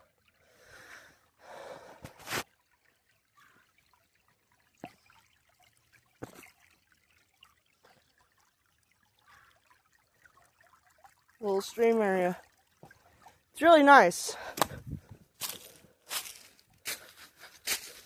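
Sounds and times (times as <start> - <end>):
small stream trickling: 0.0 - 18.0.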